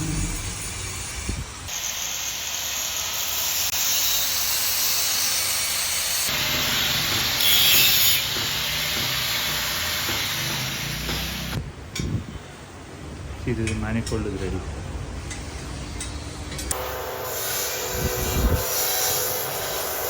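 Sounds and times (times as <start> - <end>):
power tool rasping on metal: 16.7 - 20.0.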